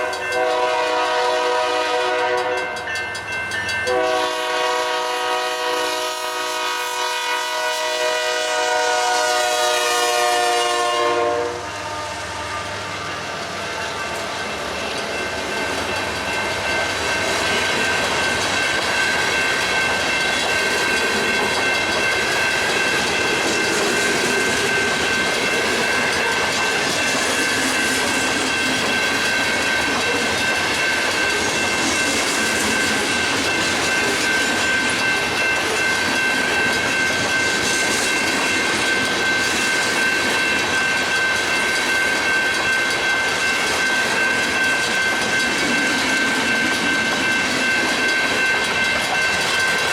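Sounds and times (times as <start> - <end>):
freight train cars clattering: 12.8 - 49.9.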